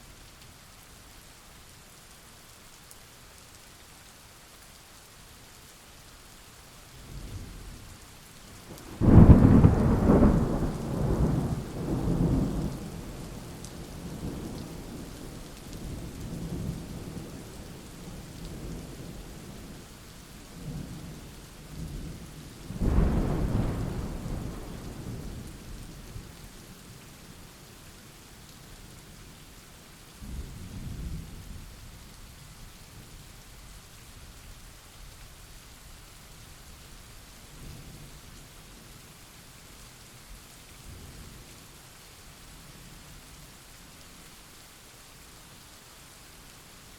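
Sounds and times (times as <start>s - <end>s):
steady rain: 0.0s - 46.9s
thunder rumbling: 8.8s - 13.6s, 22.7s - 26.3s.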